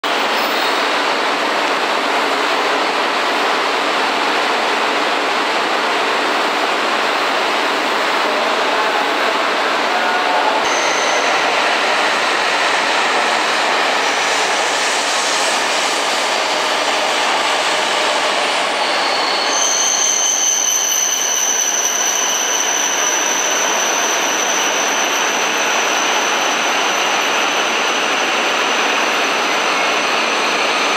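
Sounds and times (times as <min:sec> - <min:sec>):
high steady brake squeal: 0:00.0 - 0:00.9, 0:10.0 - 0:30.9
train wheels rushing on rails: 0:00.0 - 0:30.9.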